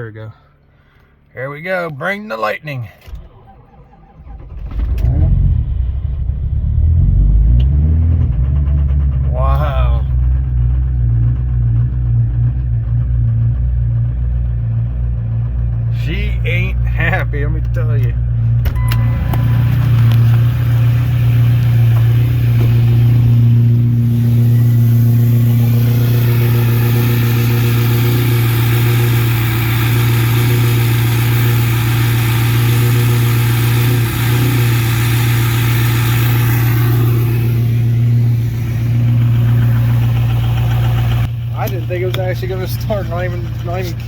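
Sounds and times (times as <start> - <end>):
diesel engine running rough: 3.0 - 44.0
higher-pitched whine: 18.7 - 41.3.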